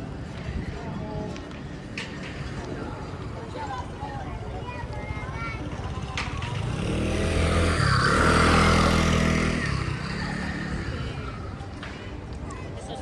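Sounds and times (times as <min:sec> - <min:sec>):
vehicle driving past: 0:06.3 - 0:11.8.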